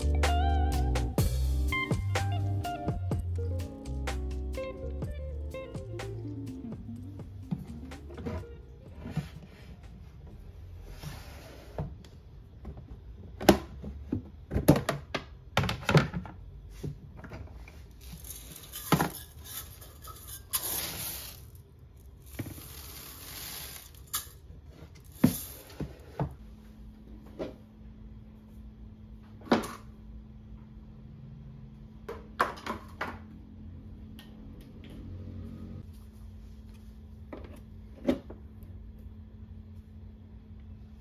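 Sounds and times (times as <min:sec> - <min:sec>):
faint steady hum: 0:00.0 - 0:41.0
rustling and scraping: 0:07.5 - 0:12.0, 0:16.6 - 0:26.4.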